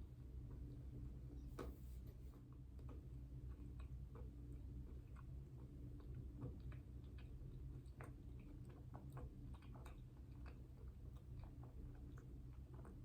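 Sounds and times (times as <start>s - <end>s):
wet chewing mouth clicks: 2.6s - 13.0s.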